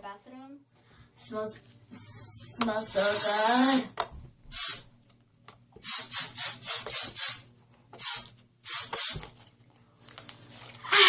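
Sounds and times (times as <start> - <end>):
spray hissing bursts: 2.3 - 3.9, 4.5 - 4.9, 5.8 - 7.4, 8.0 - 9.2.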